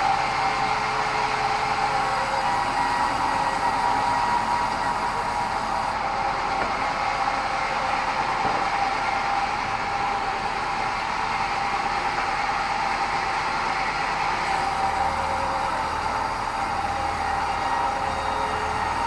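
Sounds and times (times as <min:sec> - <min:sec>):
band saw cutting timber: 0:00.0 - 0:06.0, 0:14.4 - 0:19.0.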